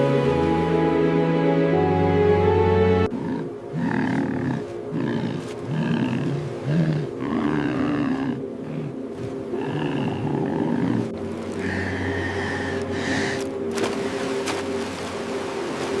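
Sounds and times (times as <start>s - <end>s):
music: 0.0s - 16.0s
large animal growling calls: 3.0s - 13.1s.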